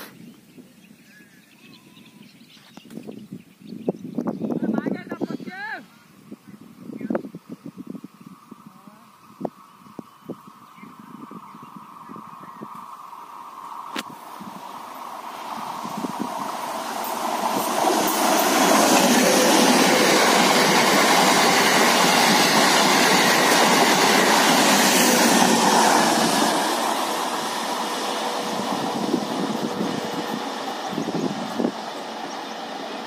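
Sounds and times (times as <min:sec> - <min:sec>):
train passing at speed: 0:07.4 - 0:33.0.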